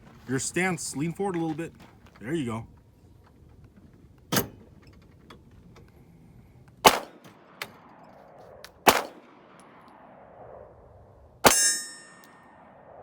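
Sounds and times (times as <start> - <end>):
pistol shots: 6.8 - 10.6, 11.4 - 13.0.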